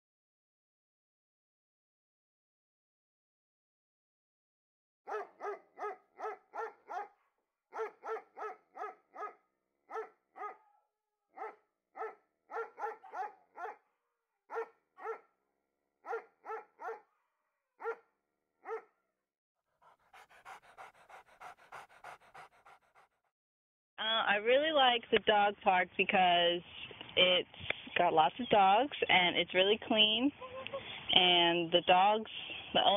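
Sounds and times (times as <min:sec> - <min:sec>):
dog barking: 0:05.1 - 0:10.8, 0:11.4 - 0:13.9, 0:14.5 - 0:15.3, 0:16.0 - 0:17.2, 0:17.8 - 0:18.0, 0:18.6 - 0:19.0, 0:19.8 - 0:23.2
dog panting: 0:07.8 - 0:09.3, 0:11.4 - 0:13.8, 0:19.7 - 0:23.3.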